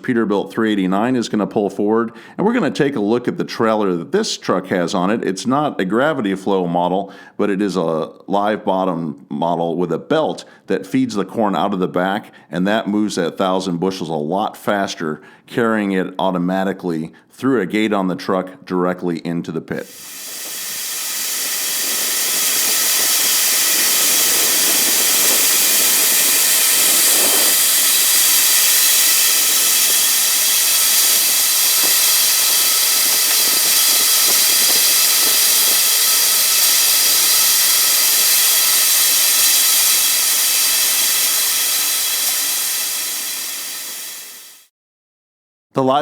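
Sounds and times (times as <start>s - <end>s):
grain pouring into pit: 19.8s - 44.6s.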